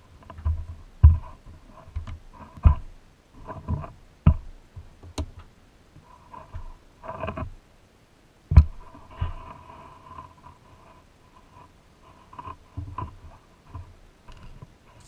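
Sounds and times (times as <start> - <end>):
faint steady hum: 0.0 - 15.0
plastic toy knocks and thumps: 3.6 - 5.4, 8.5 - 8.8.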